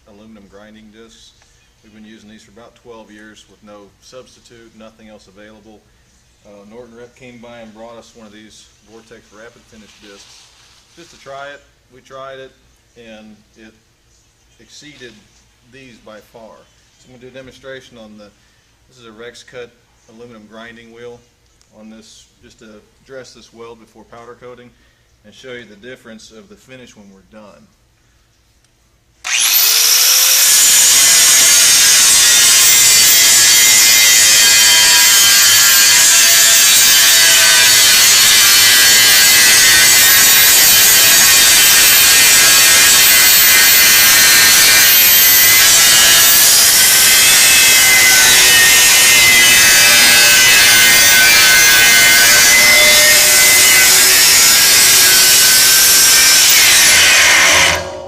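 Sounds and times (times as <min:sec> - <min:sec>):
angle grinder grinding metal: 0:29.2 - 0:58.0.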